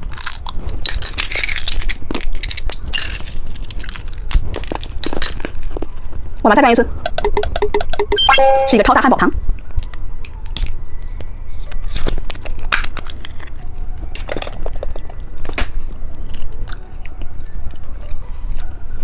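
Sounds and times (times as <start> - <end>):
candy crunching and crackling: 0.0 - 6.2.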